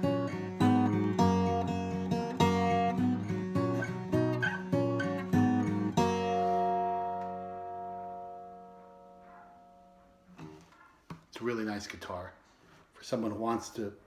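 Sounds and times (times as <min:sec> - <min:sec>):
acoustic guitar picked notes and chords: 0:00.0 - 0:10.8.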